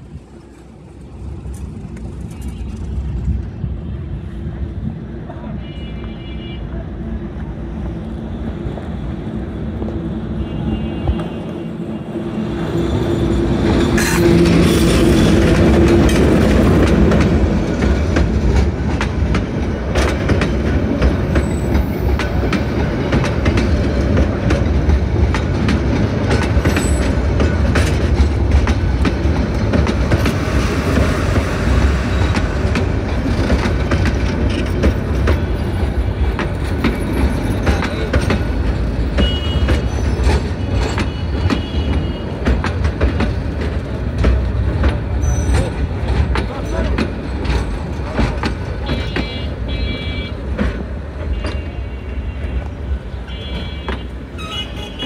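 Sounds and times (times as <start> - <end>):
train rumbling: 0.0 - 55.0
wheels clacking over rail joints: 12.4 - 55.0.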